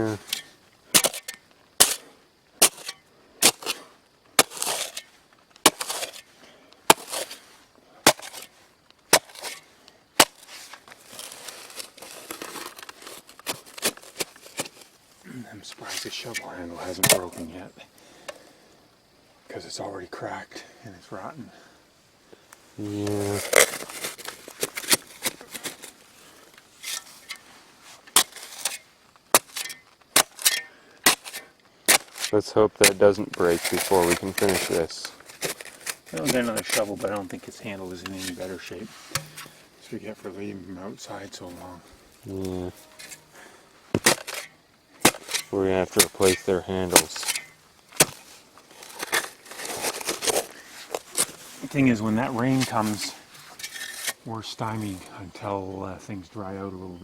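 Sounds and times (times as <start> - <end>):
shovel striking clay soil: 0.0 - 14.8, 17.0 - 17.4, 28.0 - 37.4, 38.0 - 39.6, 42.4 - 54.3
shovel scraping soil: 0.0 - 14.9, 15.8 - 17.5, 22.9 - 39.7, 41.0 - 55.1.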